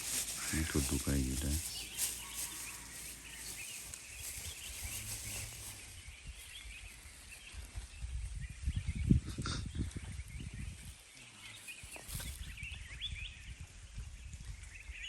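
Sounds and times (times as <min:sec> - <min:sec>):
rustling: 0:00.0 - 0:07.9.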